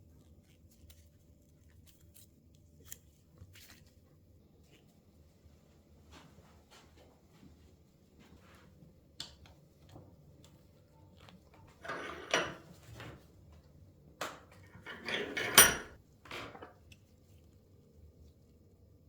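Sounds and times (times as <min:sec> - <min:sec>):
metal parts clinking: 0:14.6 - 0:16.0.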